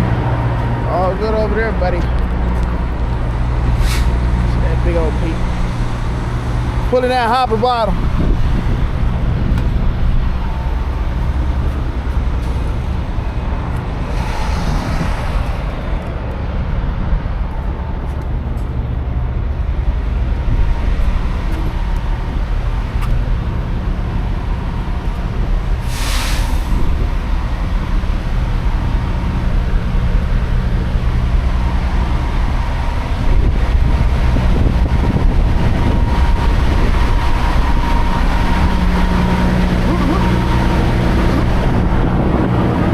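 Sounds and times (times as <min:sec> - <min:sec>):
truck engine and road drone: 0:00.0 - 0:42.9
short hiss: 0:03.8 - 0:04.2, 0:25.8 - 0:26.8.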